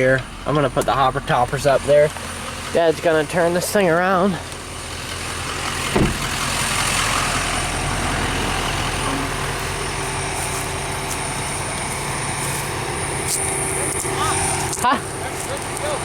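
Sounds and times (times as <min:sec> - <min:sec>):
farm machinery engine running: 0:00.0 - 0:16.0
brief thump: 0:05.9 - 0:06.4.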